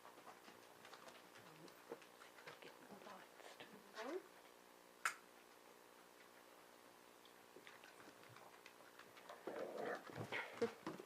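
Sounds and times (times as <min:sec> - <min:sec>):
puppies scuffling: 0:00.0 - 0:04.4, 0:07.5 - 0:11.0
small ticks: 0:07.2 - 0:09.4.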